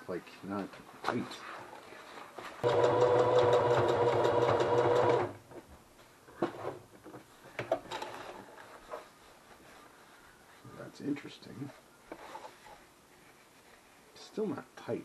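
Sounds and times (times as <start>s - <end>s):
sewing machine stitching: 2.6s - 5.4s.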